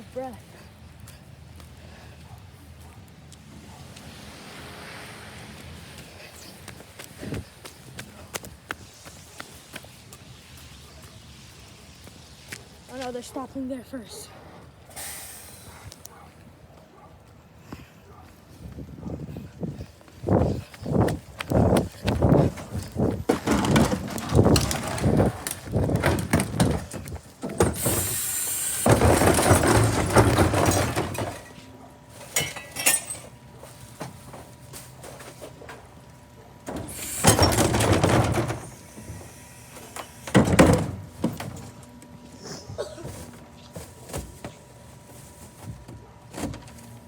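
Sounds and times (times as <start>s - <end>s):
trash crashing into garbage truck: 23.2s - 31.6s, 36.7s - 38.9s, 40.2s - 41.7s.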